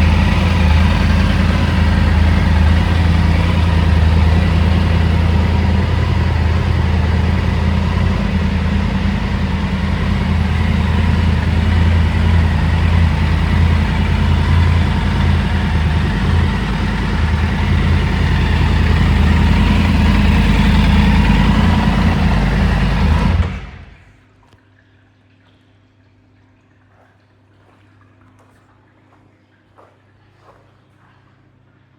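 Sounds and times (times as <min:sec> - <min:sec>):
motorcycle engine idling: 0:00.0 - 0:24.2.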